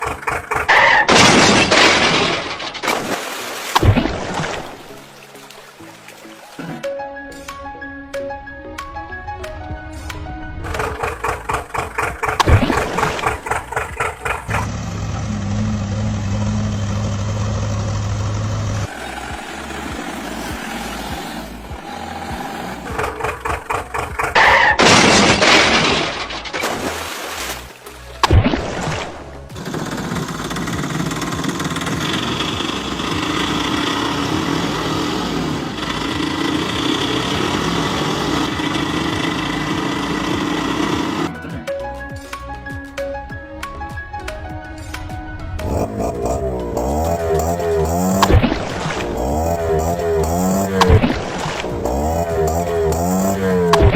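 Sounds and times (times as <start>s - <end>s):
engine idling: 0.0s - 1.2s, 10.6s - 24.9s, 29.5s - 41.4s, 45.6s - 53.9s
engine cranking: 0.0s - 2.9s, 10.6s - 26.6s, 29.5s - 41.4s, 45.6s - 53.9s.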